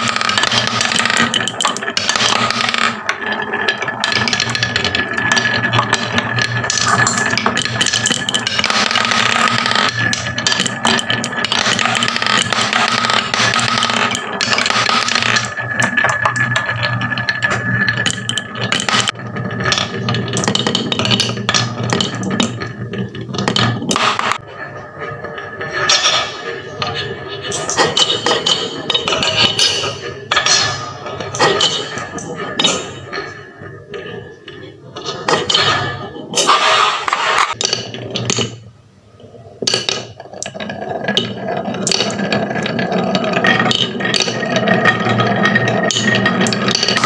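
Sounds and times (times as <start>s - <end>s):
marbles rattling down wooden run: 0.0s - 22.8s.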